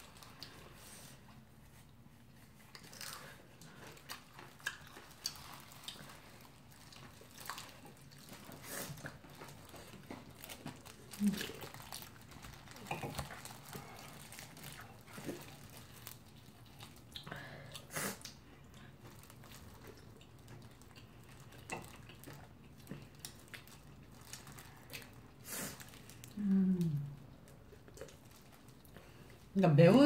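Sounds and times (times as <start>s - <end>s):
chewing fried chicken: 0.0s - 29.6s.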